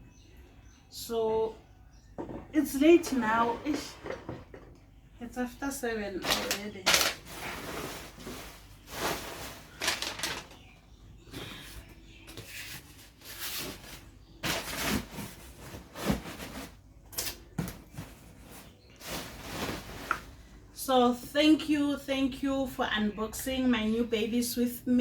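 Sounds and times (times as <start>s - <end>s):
light knocks of dishes: 2.2s - 2.6s
packaging rustling: 6.2s - 10.7s.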